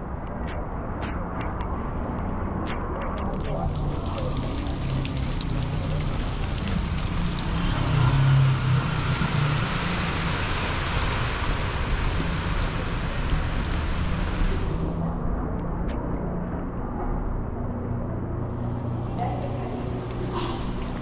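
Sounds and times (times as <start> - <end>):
low traffic rumble: 0.0 - 21.0
heavy rain hissing: 3.8 - 15.0.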